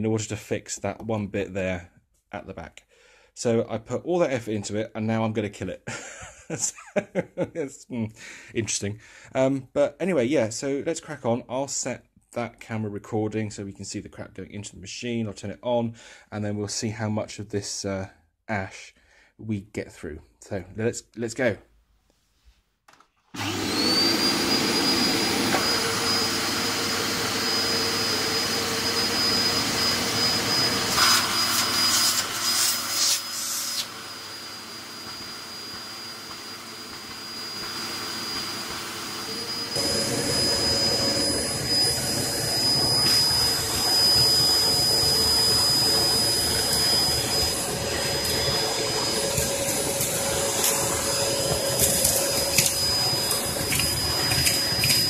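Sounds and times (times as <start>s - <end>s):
vacuum cleaner motor whine: 23.3s - 55.0s.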